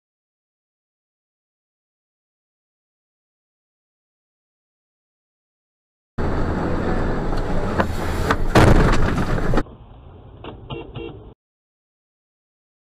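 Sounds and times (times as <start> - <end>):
road and engine noise: 6.2 - 11.4
vehicle crash bangs: 7.8 - 9.7.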